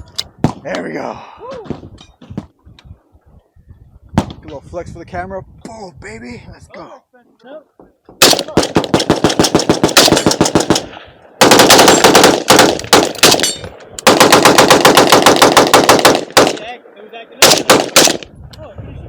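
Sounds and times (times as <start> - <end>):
rapid gunfire: 8.2 - 16.6, 17.4 - 18.2
single gunshots: 8.2 - 16.7, 17.4 - 18.3.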